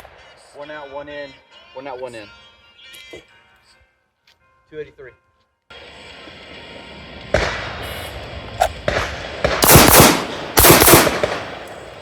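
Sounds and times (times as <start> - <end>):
gunshots: 8.8 - 12.0.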